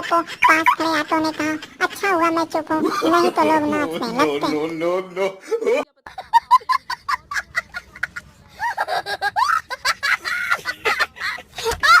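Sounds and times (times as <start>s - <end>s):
high-pitched laughter: 0.0s - 4.4s, 6.1s - 12.0s.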